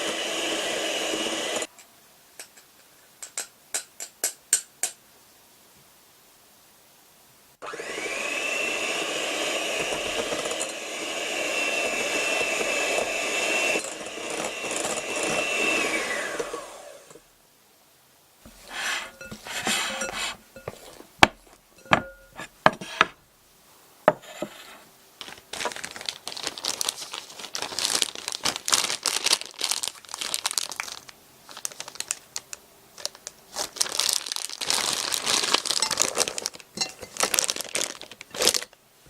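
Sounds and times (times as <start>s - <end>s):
sheet crinkling and rustling: 25.2s - 38.8s.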